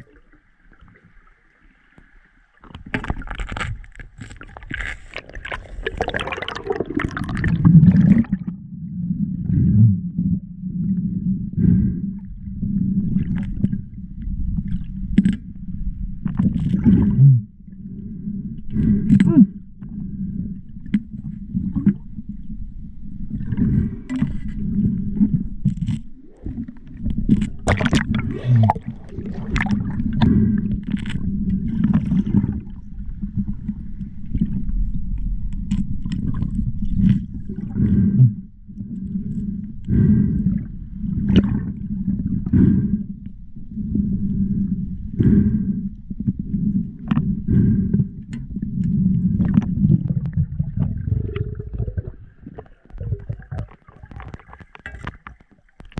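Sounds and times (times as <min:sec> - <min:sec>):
muffled boomy water noise: 0:00.0 - 0:55.9
steady low hum: 0:08.4 - 0:52.3.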